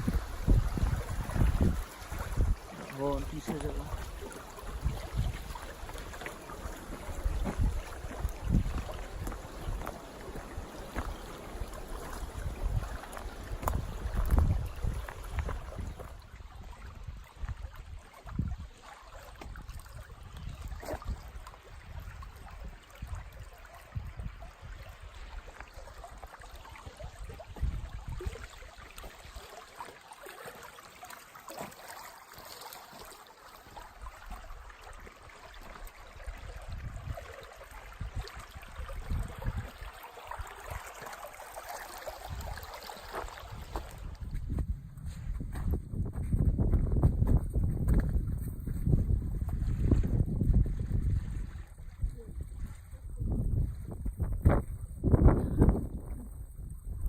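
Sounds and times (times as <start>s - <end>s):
stream water flowing: 0.0s - 44.6s, 47.9s - 57.0s
low thumps on microphone: 44.3s - 50.4s.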